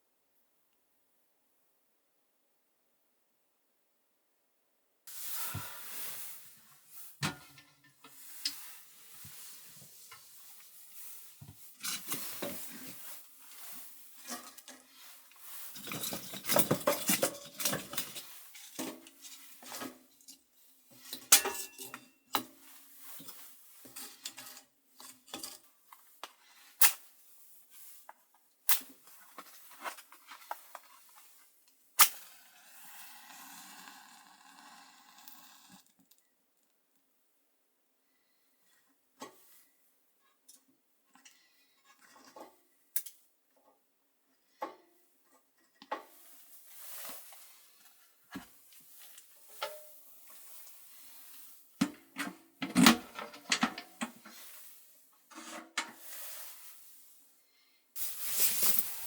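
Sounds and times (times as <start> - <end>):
cookware clinking and clattering: 15.8 - 19.0, 21.2 - 22.5.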